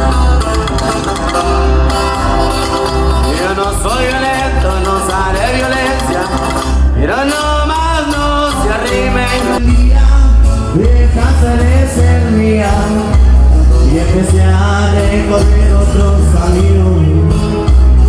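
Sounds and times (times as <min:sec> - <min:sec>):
heavy pulsing bass: 0:00.0 - 0:18.0
latin band playing: 0:00.0 - 0:18.0
person singing: 0:00.0 - 0:18.0.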